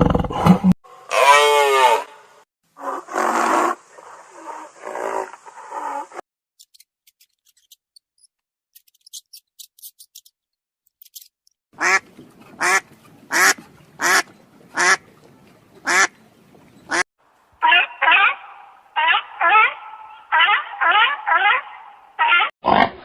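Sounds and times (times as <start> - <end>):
duck quacking: 11.8 - 12.0, 12.6 - 15.0, 15.8 - 16.1, 17.6 - 22.5.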